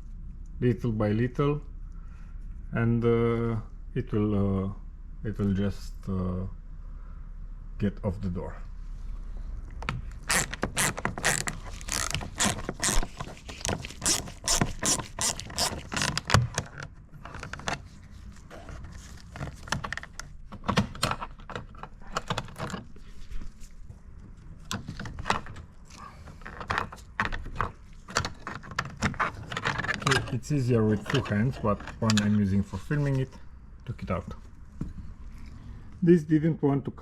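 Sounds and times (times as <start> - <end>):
plastic trim clicking and scraping: 9.8 - 17.9, 24.6 - 32.4.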